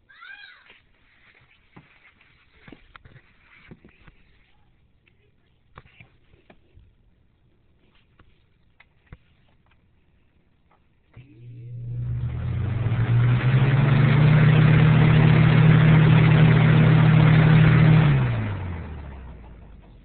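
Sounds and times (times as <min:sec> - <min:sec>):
box fan motor hum: 0:11.2 - 0:20.0.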